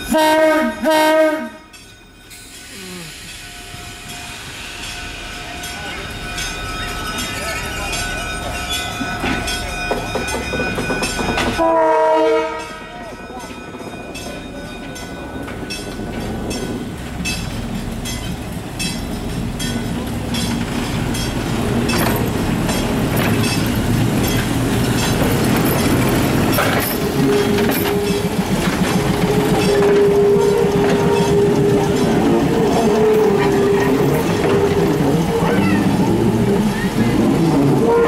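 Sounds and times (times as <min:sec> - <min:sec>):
train wheels clicking over rail joints: 0:04.8 - 0:11.7, 0:13.4 - 0:38.0.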